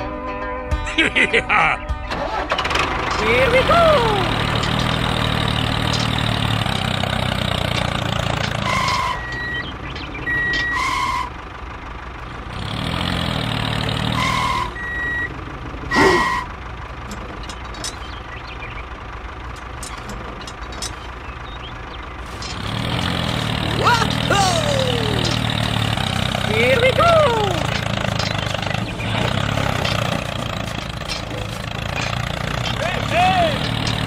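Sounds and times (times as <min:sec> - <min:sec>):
small tractor engine running: 0:02.0 - 0:34.0
two-tone electronic beeps: 0:08.6 - 0:11.3, 0:14.2 - 0:15.3.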